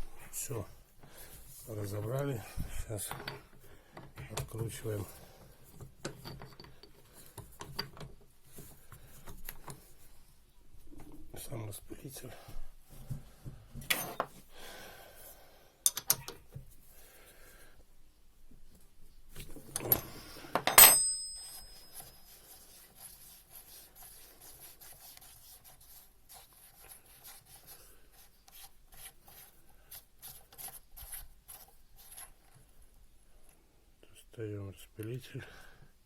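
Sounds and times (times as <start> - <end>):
metal tools clicking and scraping: 6.0 - 8.0, 15.8 - 16.5, 19.7 - 22.3
metallic clank ringing: 20.6 - 21.9
faint rubbing strokes: 21.8 - 32.5.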